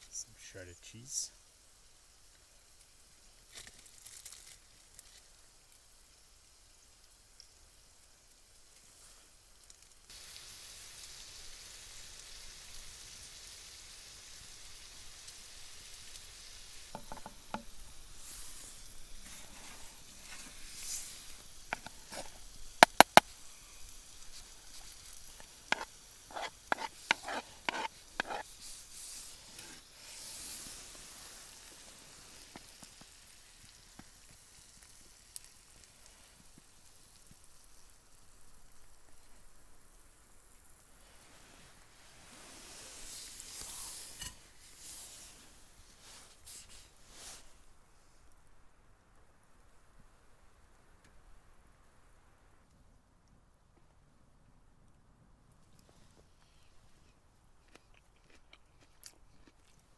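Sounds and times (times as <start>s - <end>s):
food sizzling in a pan: 0.0s - 47.8s
utensil knocking against pan: 25.7s - 28.4s.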